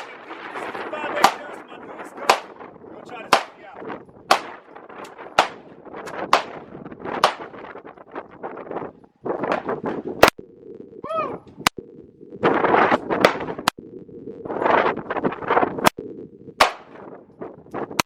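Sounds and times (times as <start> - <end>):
pistol shots: 1.2 - 1.6, 2.2 - 2.6, 3.3 - 3.6, 4.3 - 4.6, 5.4 - 5.7, 6.3 - 6.6, 7.2 - 7.5, 16.6 - 17.0.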